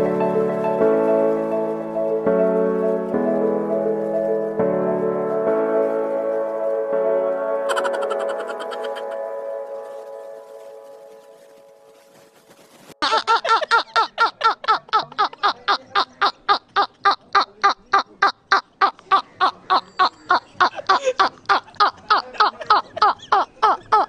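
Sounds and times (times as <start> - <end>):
person laughing heartily: 7.7 - 9.2, 13.0 - 24.0.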